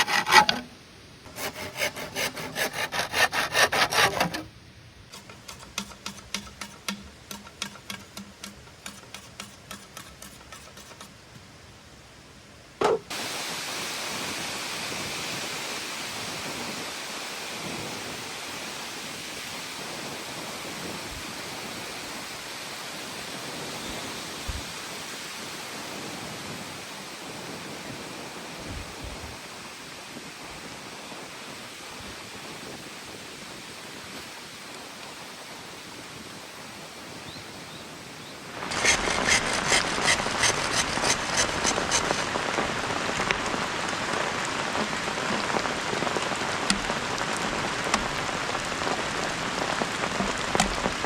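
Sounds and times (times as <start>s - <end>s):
hand saw cutting wood: 0.0s - 0.7s, 1.3s - 4.5s, 5.1s - 11.2s, 38.6s - 42.6s, 46.7s - 46.9s
heavy rain: 13.1s - 23.5s, 42.1s - 51.0s.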